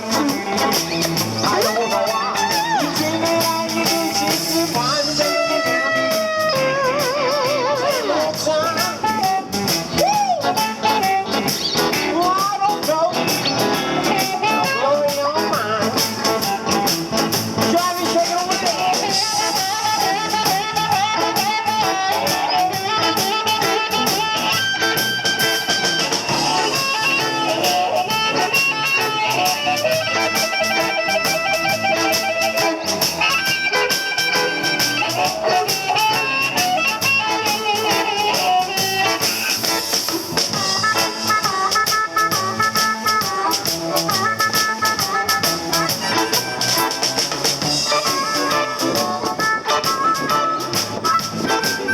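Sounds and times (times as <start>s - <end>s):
instrumental blues band: 0.0s - 51.9s.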